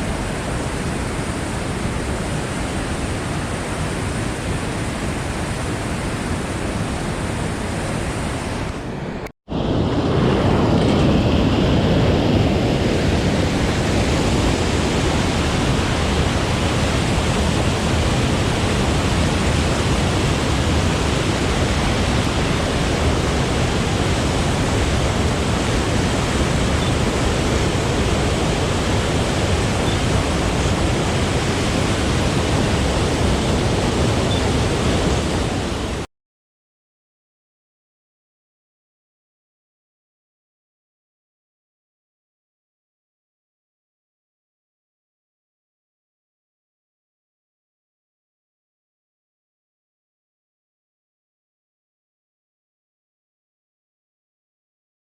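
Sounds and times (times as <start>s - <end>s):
whitewater pouring from floodgates: 13.9s - 36.1s.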